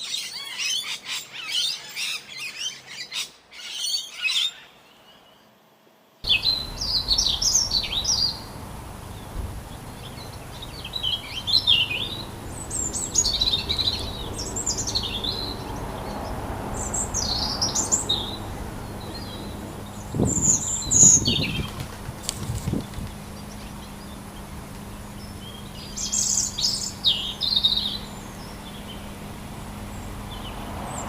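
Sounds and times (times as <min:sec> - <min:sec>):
low steady hum: 0:06.2 - 0:30.9
songbird chirping: 0:06.2 - 0:31.0.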